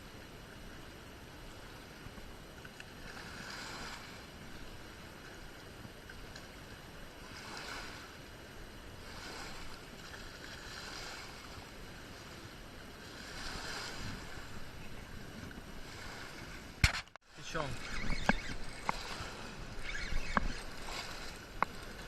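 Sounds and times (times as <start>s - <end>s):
water rushing: 0.4s - 22.0s
wind on microphone: 7.2s - 22.0s.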